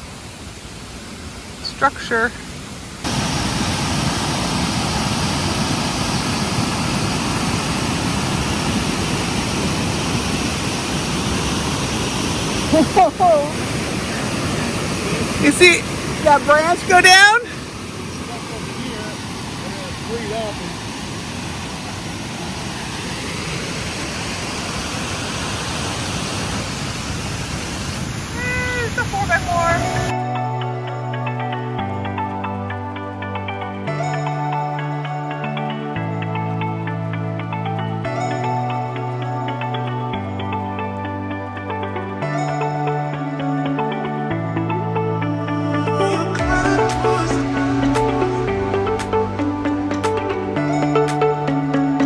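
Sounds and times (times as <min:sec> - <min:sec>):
river water rushing: 0:00.0 - 0:30.3, 0:46.3 - 0:52.0.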